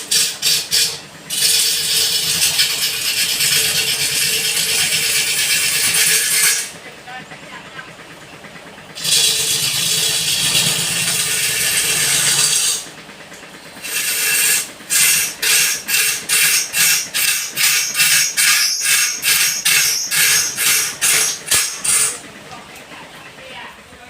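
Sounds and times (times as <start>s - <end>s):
tool scraping wood: 0.0s - 6.8s, 9.0s - 12.9s, 13.8s - 22.2s.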